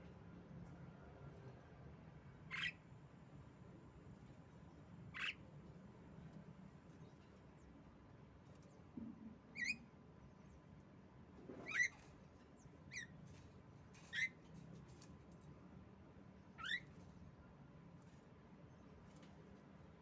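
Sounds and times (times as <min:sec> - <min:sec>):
myna squeaky calls: 0:02.5 - 0:02.8, 0:16.6 - 0:16.8.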